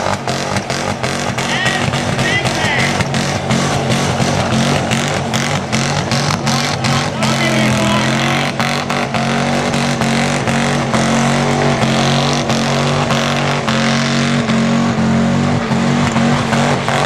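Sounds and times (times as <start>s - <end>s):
truck engine at high revs: 0.0s - 17.0s.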